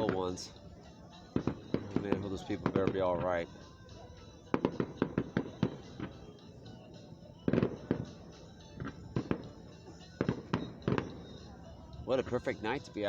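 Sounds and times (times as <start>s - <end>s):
fireworks bangs: 1.3s - 3.4s, 4.5s - 6.4s, 7.4s - 11.6s.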